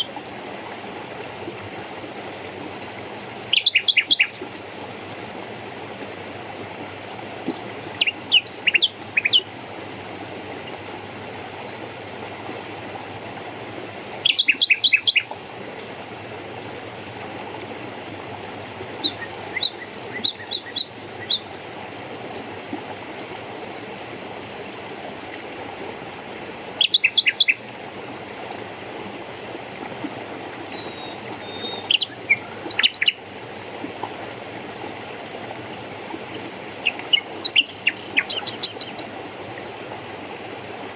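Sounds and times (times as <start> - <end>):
running water: 0.0 - 40.9
birds calling: 2.6 - 4.4, 7.5 - 9.4, 12.6 - 15.3, 30.8 - 33.2.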